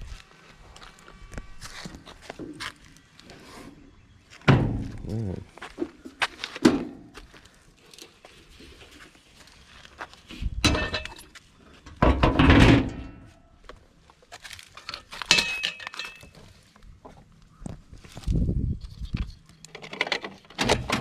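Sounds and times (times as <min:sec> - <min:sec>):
metal tools clanking: 0:10.6 - 0:11.3, 0:14.7 - 0:16.4.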